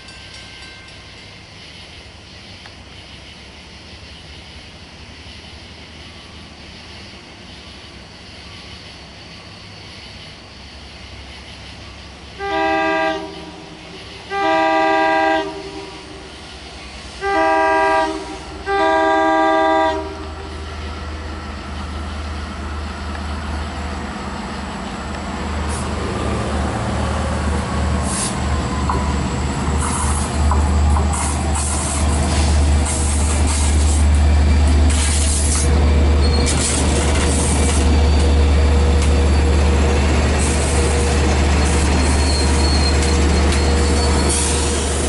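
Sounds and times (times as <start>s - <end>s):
train air horn blasts: 12.4s - 16.3s, 17.2s - 20.4s
diesel engine low rumble: 18.3s - 45.0s.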